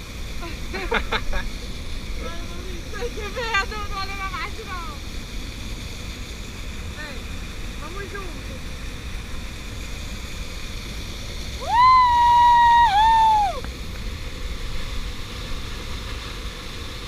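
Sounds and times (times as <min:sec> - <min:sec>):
waterfall rushing: 0:00.0 - 0:17.0
person whooping cheer: 0:11.6 - 0:13.6.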